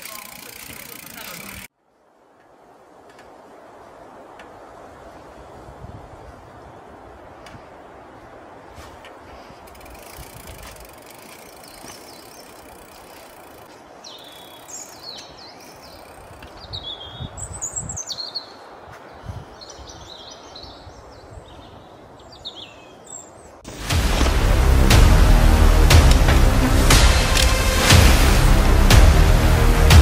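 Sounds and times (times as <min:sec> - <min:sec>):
small birds chirping: 0:11.1 - 0:23.6
outdoor hiss: 0:23.6 - 0:30.0
low rumbles: 0:23.7 - 0:30.0.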